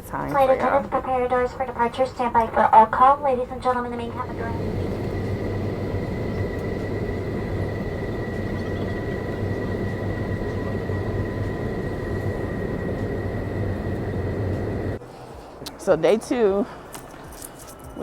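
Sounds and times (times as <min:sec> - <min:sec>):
jet engine cabin rumble: 0:00.0 - 0:15.0
constant high whine: 0:00.0 - 0:18.0.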